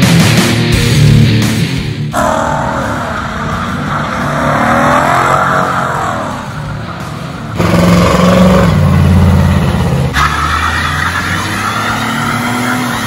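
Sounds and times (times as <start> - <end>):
car engine revving: 1.5 - 13.0
engine running at low pitch: 2.1 - 10.5.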